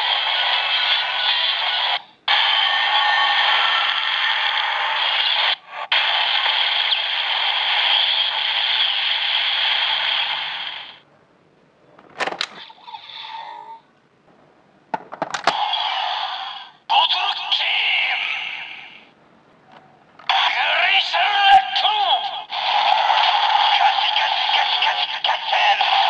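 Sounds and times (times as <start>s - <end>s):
plastic mechanism clicks: 12.0s - 12.6s, 14.9s - 15.6s
toy speaker sound effect: 12.6s - 13.8s, 15.4s - 19.0s, 20.2s - 26.0s.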